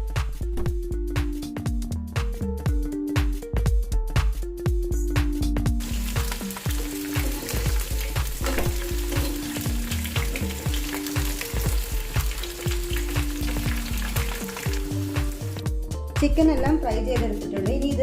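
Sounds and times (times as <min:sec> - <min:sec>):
background music with steady beat: 0:00.0 - 0:18.0
chicken deep-frying in hot oil: 0:05.8 - 0:15.6.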